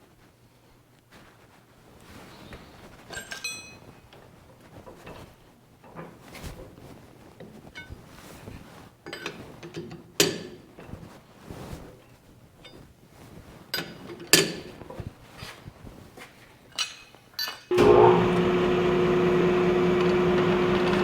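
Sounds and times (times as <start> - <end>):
metal tools clicking and clinking: 3.1 - 3.9, 16.7 - 17.7.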